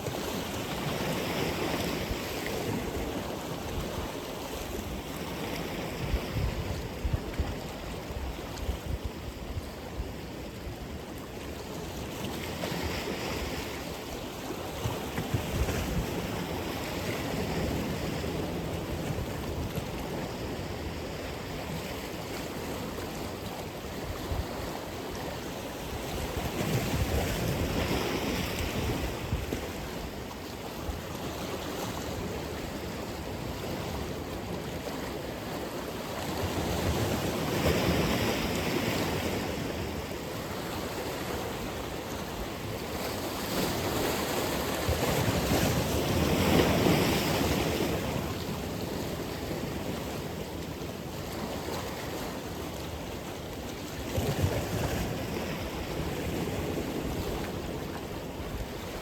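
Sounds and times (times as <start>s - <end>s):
wind on microphone: 0.0s - 35.7s
ocean waves breaking on shore: 0.0s - 59.0s.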